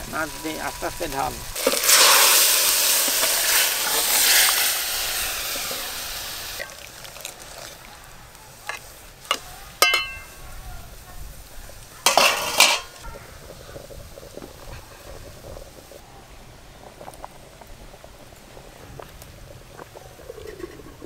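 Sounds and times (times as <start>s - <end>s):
hot oil hissing and sizzling: 0.0s - 21.0s
metal spatula clinking on wok: 9.3s - 10.4s, 12.1s - 12.9s.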